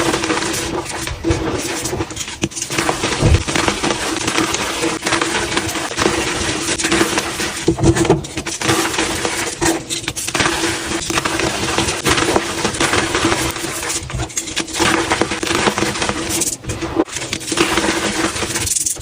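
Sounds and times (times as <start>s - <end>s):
chalk being crushed: 0.0s - 7.6s.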